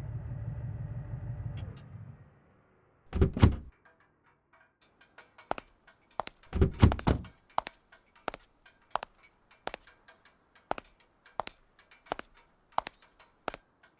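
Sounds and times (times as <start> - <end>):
heavy thunk: 3.1 - 3.7, 6.5 - 7.3
sharp evenly spaced clicks: 7.4 - 13.9.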